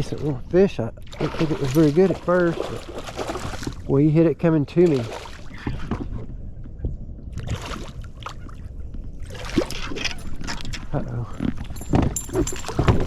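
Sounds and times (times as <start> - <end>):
water splashing: 1.1 - 3.9, 9.2 - 10.9.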